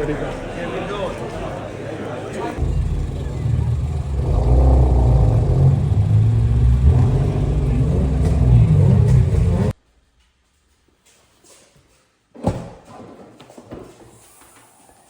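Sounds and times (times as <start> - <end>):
car engine running: 0.0 - 9.7.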